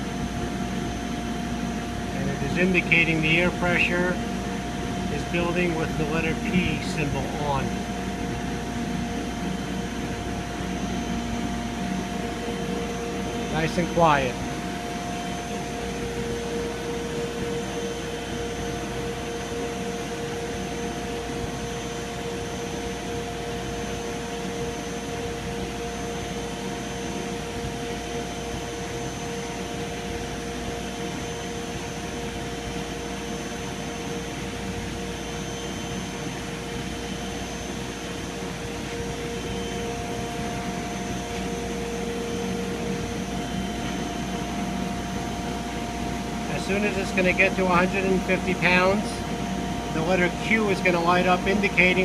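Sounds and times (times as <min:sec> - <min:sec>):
air compressor hum: 0:00.0 - 0:52.0
steady tones: 0:00.6 - 0:18.6, 0:36.6 - 0:52.0.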